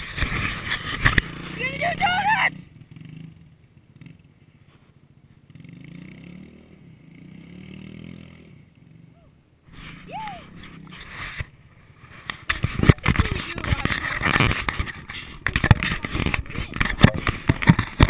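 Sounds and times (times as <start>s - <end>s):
pit bike engine revving: 0.0s - 4.4s, 5.4s - 9.2s.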